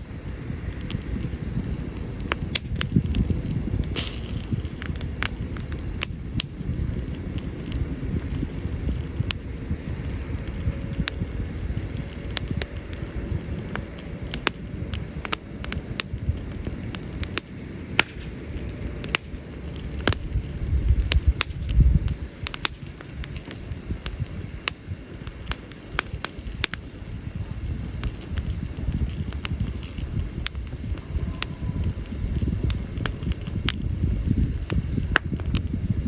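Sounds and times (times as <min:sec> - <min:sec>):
campfire crackling: 0:00.0 - 0:36.0
fire pops and snaps: 0:00.0 - 0:36.0
low rumble: 0:27.0 - 0:36.0.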